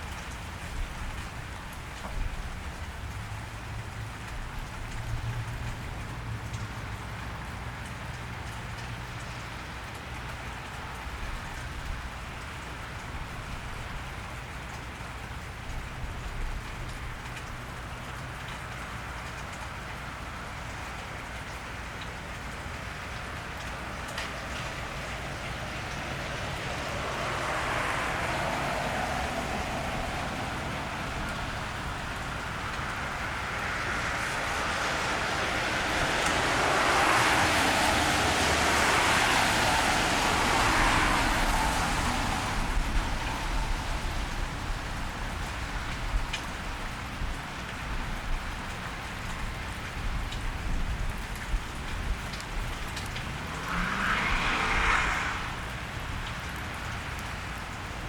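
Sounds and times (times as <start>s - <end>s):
car passing on wet road: 0.0s - 58.0s
rain on a wet street: 0.0s - 58.0s
water dripping: 0.0s - 58.0s.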